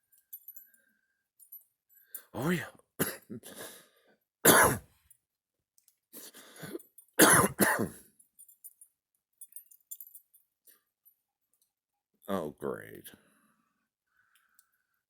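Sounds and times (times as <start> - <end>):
person coughing: 3.0 - 3.8, 4.5 - 4.8, 6.5 - 8.0.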